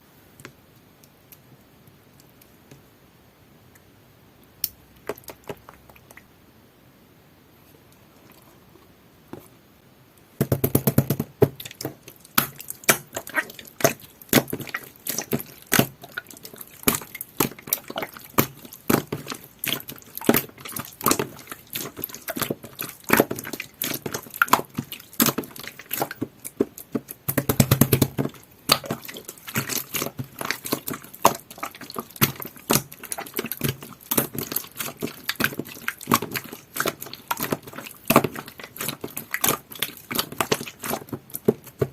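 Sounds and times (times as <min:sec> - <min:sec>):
slime squishing wet clicks: 0:11.6 - 0:41.9.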